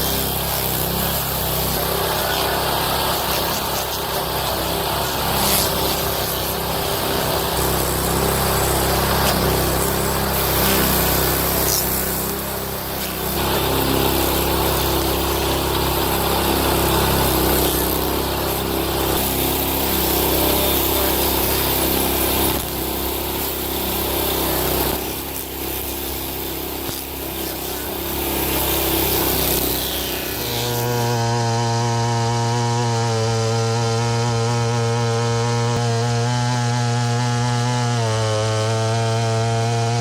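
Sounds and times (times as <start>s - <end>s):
chainsaw engine running: 0.0s - 40.0s
power machine working wood: 0.0s - 40.0s.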